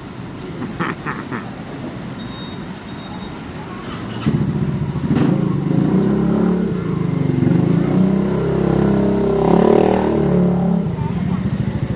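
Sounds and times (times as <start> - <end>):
loud engine revving: 4.2 - 11.0.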